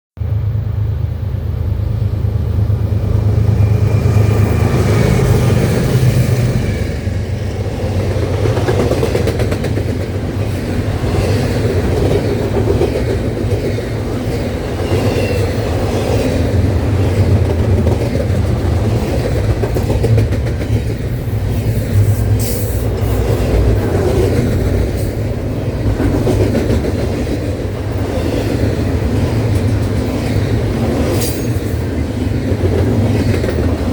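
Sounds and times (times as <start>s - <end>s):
freight train wheels rumbling: 0.2s - 33.9s
train cars clattering: 2.5s - 33.9s.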